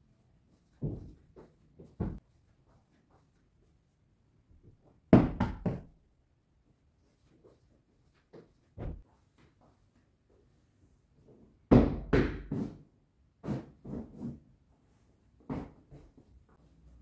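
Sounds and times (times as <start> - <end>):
household objects knocking and thudding: 8.8 - 9.1, 11.7 - 14.3.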